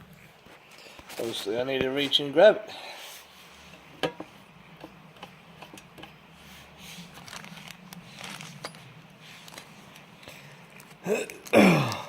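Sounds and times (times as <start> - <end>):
faint steady hum: 0.0 - 12.0
small parts clicking and rustling: 7.1 - 11.6.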